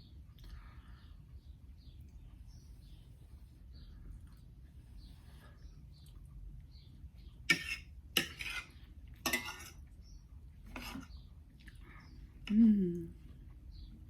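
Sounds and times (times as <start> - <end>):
cutlery clinking against dish: 7.5 - 9.8
cutlery scraping dish: 7.5 - 9.8, 10.7 - 11.2.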